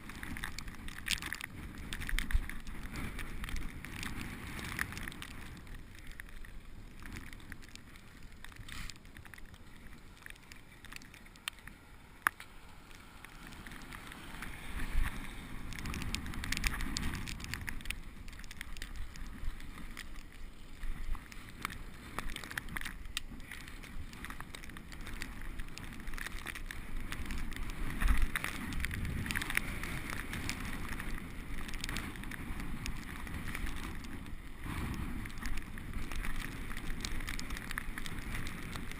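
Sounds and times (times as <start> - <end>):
bicycle tyre noise on snow: 0.0 - 38.9
bike clicks and rattles: 0.0 - 38.9.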